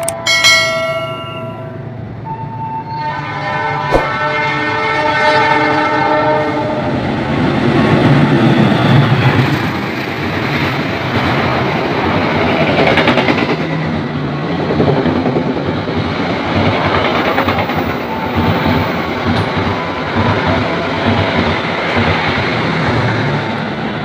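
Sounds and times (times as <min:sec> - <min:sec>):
train wheels on rails: 0:07.0 - 0:24.0.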